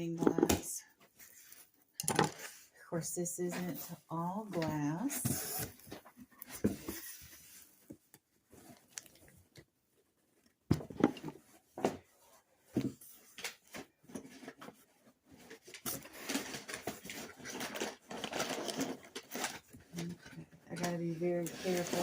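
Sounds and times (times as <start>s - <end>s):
cardboard rustling: 3.6s - 9.2s, 11.1s - 22.0s.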